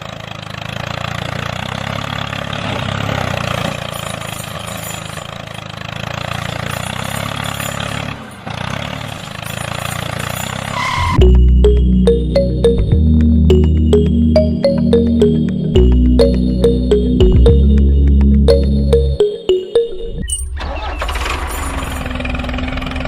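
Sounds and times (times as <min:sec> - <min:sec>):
music: 0:11.2 - 0:20.3.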